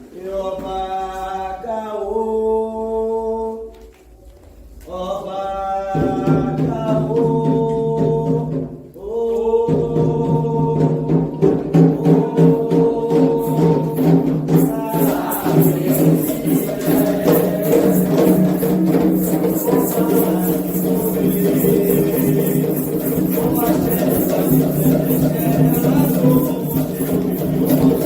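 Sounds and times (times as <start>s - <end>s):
steady percussion: 5.8s - 28.0s
fast rattling beat: 11.6s - 28.0s.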